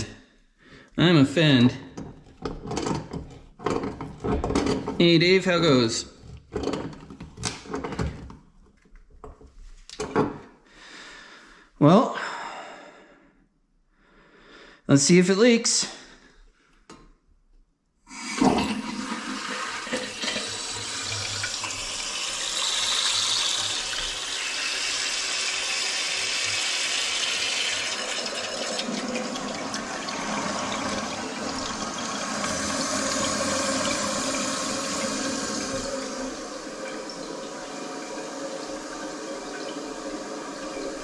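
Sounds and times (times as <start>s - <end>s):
water filling toilet tank: 1.4s - 8.4s, 18.1s - 41.0s.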